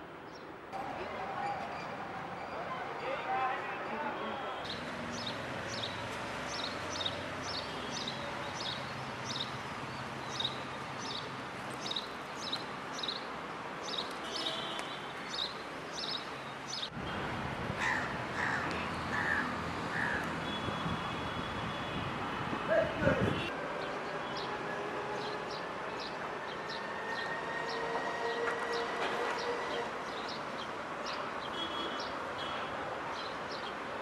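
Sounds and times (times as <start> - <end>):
outdoor ambience: 0.0 - 34.0.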